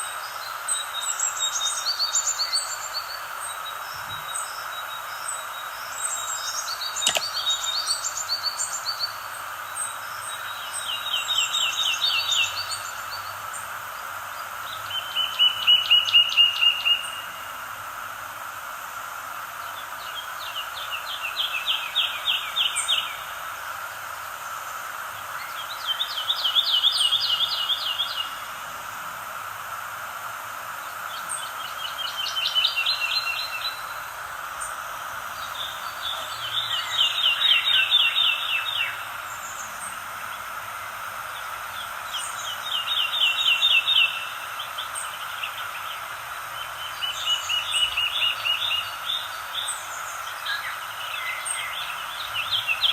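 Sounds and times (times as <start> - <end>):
chorus of calling animals: 35.4 - 39.0.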